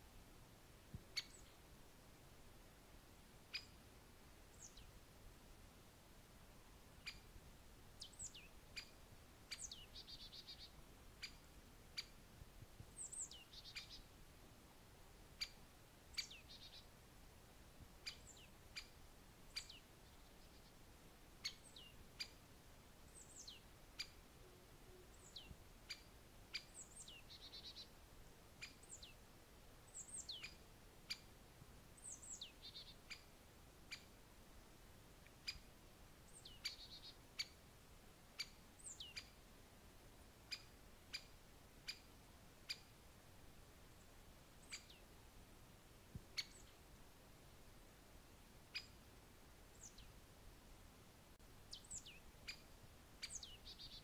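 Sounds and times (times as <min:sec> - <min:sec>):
faint high bird calls: 0:01.1 - 0:01.6, 0:03.5 - 0:03.8, 0:07.0 - 0:07.3, 0:08.0 - 0:12.2, 0:12.9 - 0:14.1, 0:15.4 - 0:16.9, 0:18.0 - 0:20.8, 0:23.1 - 0:28.0, 0:28.6 - 0:29.2, 0:32.0 - 0:33.3, 0:33.9 - 0:34.2, 0:35.4 - 0:35.7, 0:36.3 - 0:37.6, 0:38.4 - 0:39.4, 0:40.5 - 0:42.1, 0:44.6 - 0:45.1, 0:46.3 - 0:46.8, 0:48.7 - 0:49.0, 0:51.6 - 0:54.0.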